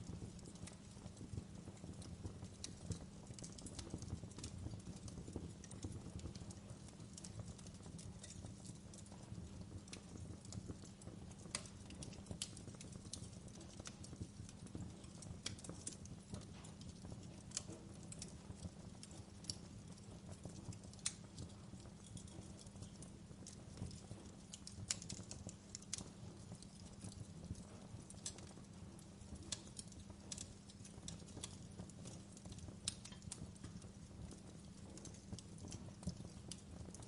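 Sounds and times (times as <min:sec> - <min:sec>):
logs crackling and popping: 0:00.0 - 0:37.0
low rumble of flames: 0:00.0 - 0:37.0.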